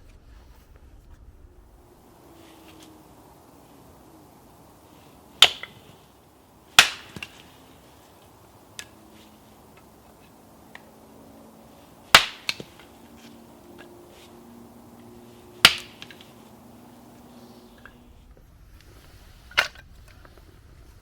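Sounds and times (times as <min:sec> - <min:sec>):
loud sharp cracks with echo: 0:05.4 - 0:06.0, 0:06.7 - 0:07.6, 0:12.1 - 0:13.0, 0:15.6 - 0:16.4.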